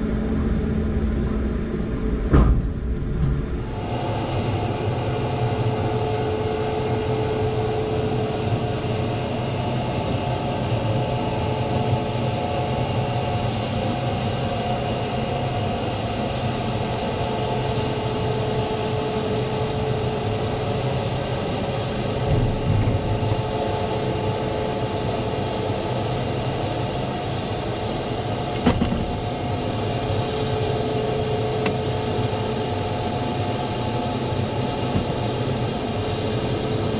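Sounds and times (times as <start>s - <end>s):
steady whine: 0.0s - 36.9s
truck engine drone: 0.0s - 36.9s
road and cab noise: 27.8s - 36.9s.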